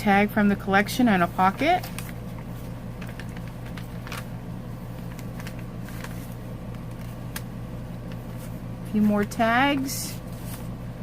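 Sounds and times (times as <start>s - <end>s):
steady low hum: 0.0s - 11.0s
paper rustling: 1.5s - 4.3s, 4.9s - 7.4s, 8.1s - 10.8s.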